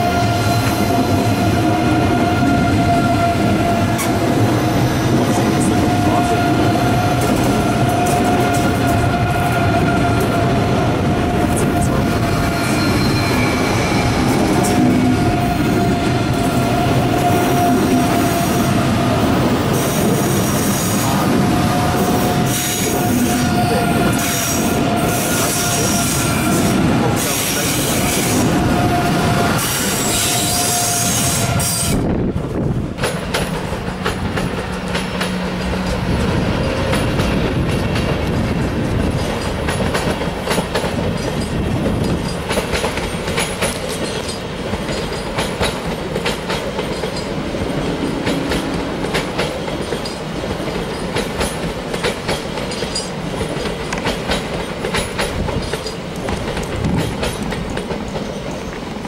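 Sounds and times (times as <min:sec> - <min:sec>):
train wheels squealing: 0:11.8 - 0:18.6, 0:19.8 - 0:32.0
train clattering over switches: 0:33.0 - 0:58.8.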